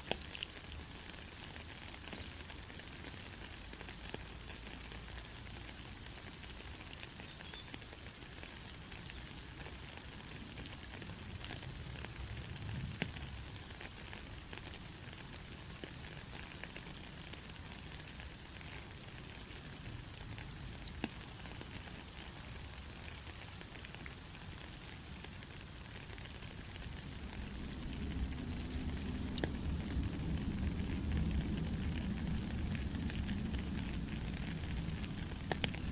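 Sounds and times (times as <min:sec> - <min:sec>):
steady white-noise hiss: 0:00.0 - 0:35.9.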